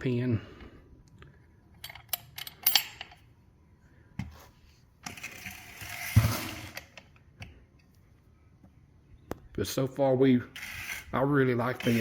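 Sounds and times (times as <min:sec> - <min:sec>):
metal clinks and rattles: 0:01.8 - 0:03.2.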